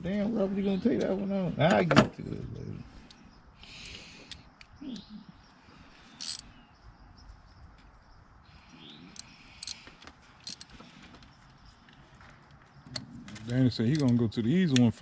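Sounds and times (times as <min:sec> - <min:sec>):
metallic clicks of hand tools: 0:06.2 - 0:06.4, 0:09.2 - 0:10.7, 0:13.5 - 0:14.9.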